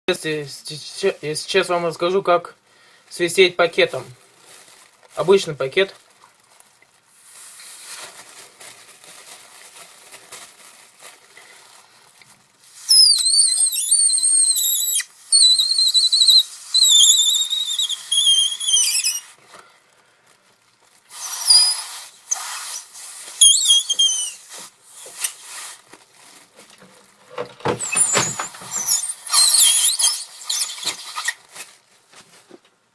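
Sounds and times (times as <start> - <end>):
plastic bag rustling: 2.8 - 14.8, 15.4 - 32.9
plastic bag whistling: 12.6 - 19.4, 20.9 - 26.6, 27.7 - 31.8.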